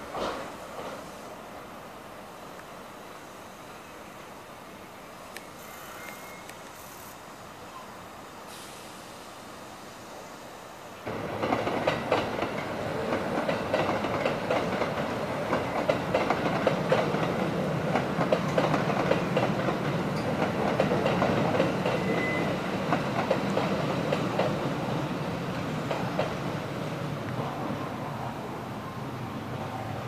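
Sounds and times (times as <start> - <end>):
train wheels clacking over rail joints: 0.0 - 1.1, 11.1 - 26.6
train rumble: 0.0 - 6.8, 8.4 - 30.0
high-pitched squeal: 5.6 - 7.0.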